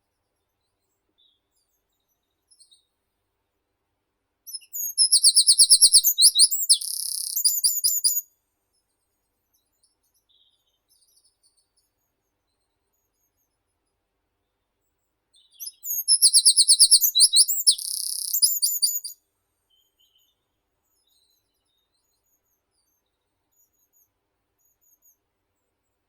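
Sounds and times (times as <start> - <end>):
faint high bird chirps: 0.4 - 3.0, 4.5 - 8.4, 9.4 - 13.7, 14.4 - 25.7
songbird singing: 4.5 - 8.3, 15.4 - 22.4.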